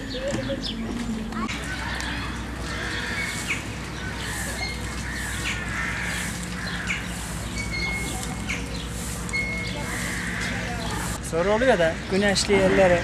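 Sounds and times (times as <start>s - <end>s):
small birds chirping: 0.0s - 13.0s
broom sweeping paving stones: 1.0s - 11.3s.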